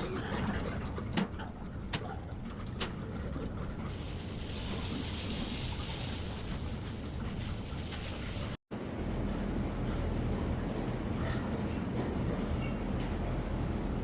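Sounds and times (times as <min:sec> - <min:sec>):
hiss: 0:03.9 - 0:08.6.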